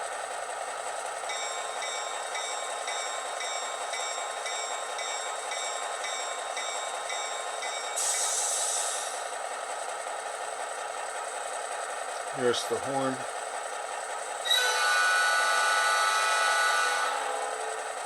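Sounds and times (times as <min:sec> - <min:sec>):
locomotive bell ringing: 0:01.2 - 0:08.4, 0:14.5 - 0:18.0
hiss: 0:08.0 - 0:09.3
diesel engine idling: 0:08.4 - 0:14.4.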